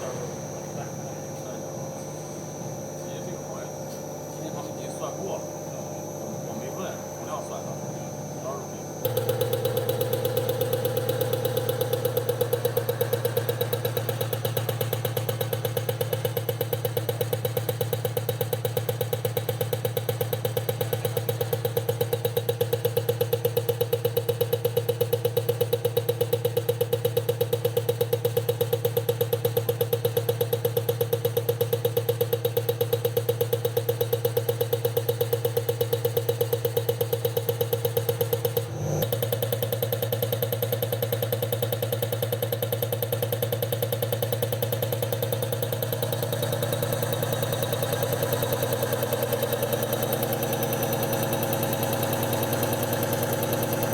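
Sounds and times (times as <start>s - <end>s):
low motor hum: 0.0s - 25.9s, 27.6s - 53.9s
fast even ticking: 9.0s - 23.2s.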